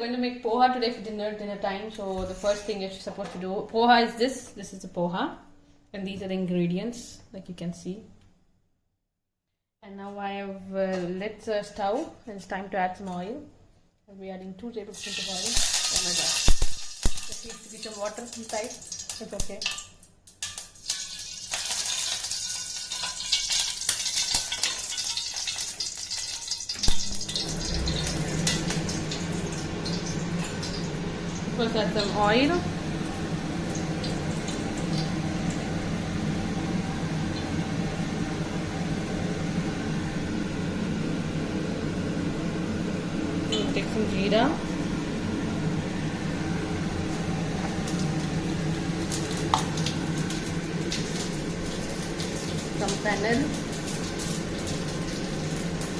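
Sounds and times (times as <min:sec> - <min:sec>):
hot oil spitting in a pan: 0:15.0 - 0:37.6, 0:47.6 - 0:55.9
low steady hum: 0:26.7 - 0:55.9.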